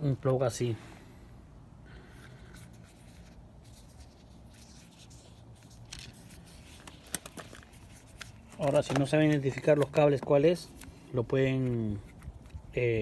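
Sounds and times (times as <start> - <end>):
plastic plug clicks and rustles: 5.9 - 12.6.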